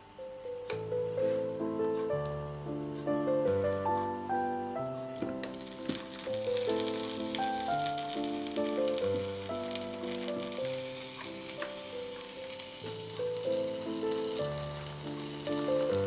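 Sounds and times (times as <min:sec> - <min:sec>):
piano music: 0:00.0 - 0:16.0
food sizzling in frying pan: 0:05.2 - 0:16.0.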